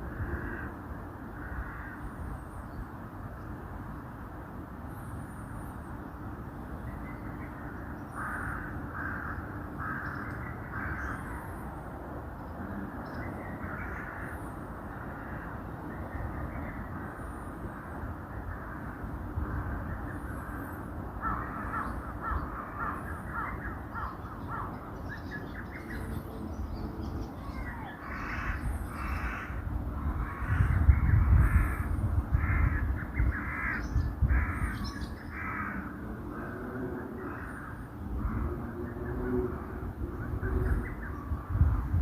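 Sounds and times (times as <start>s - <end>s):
crows cawing: 0.1s - 2.2s, 8.1s - 11.5s, 13.6s - 15.6s, 20.3s - 24.8s, 27.5s - 38.5s
small birds chirping: 19.9s - 29.6s.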